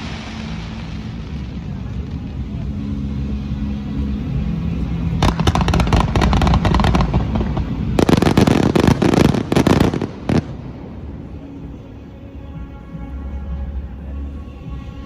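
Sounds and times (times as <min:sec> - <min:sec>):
fireworks crackling: 0:00.0 - 0:11.8
low steady hum: 0:00.0 - 0:15.0.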